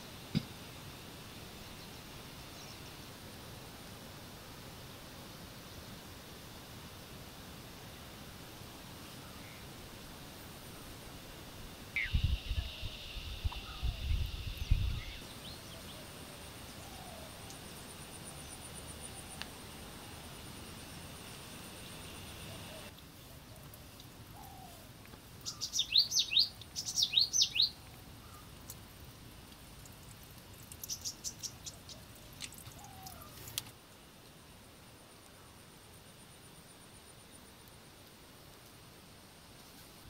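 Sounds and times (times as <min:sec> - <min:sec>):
insect trill: 0:11.8 - 0:22.9
wind buffeting microphone: 0:12.0 - 0:15.3
high bird calls: 0:12.0 - 0:16.0, 0:25.4 - 0:28.4.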